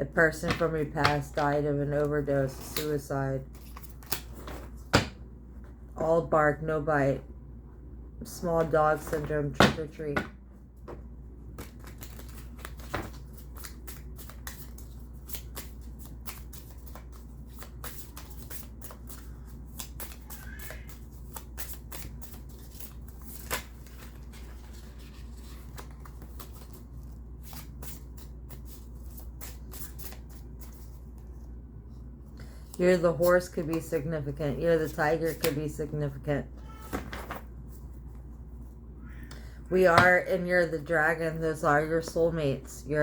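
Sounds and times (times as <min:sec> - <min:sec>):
low steady hum: 0:00.0 - 0:43.0
cards being shuffled: 0:02.4 - 0:04.9, 0:11.5 - 0:31.5.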